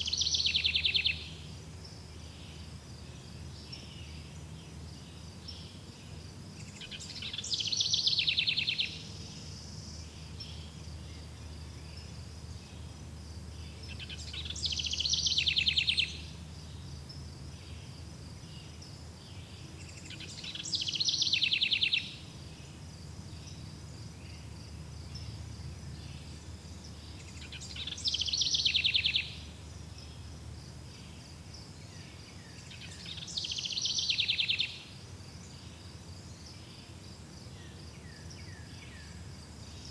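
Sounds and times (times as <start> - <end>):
bird singing with trill: 0.0 - 1.5, 6.6 - 11.4, 13.6 - 16.4, 19.8 - 22.2, 25.9 - 30.2, 31.8 - 34.9.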